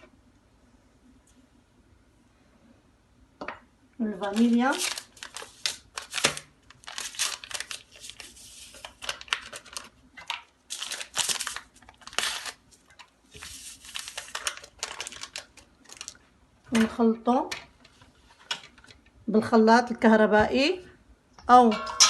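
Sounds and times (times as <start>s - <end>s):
paper sachets crinkling and tearing: 4.2s - 16.2s.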